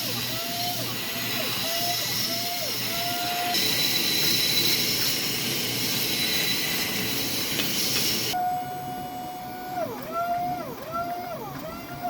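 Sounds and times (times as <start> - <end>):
power grinder hissing on steel: 0.0 - 9.4.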